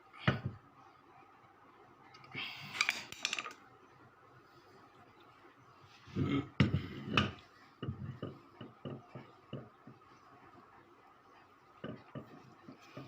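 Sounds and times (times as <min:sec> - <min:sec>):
metal parts clattering: 0:02.8 - 0:03.6.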